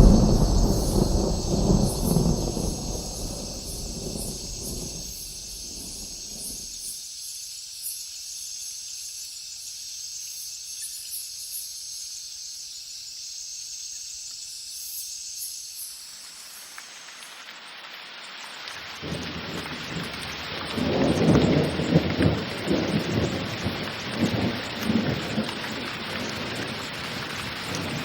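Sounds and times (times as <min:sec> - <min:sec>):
thunder rumbling: 0:00.0 - 0:06.8, 0:18.9 - 0:28.0
steady high hiss: 0:00.0 - 0:28.0.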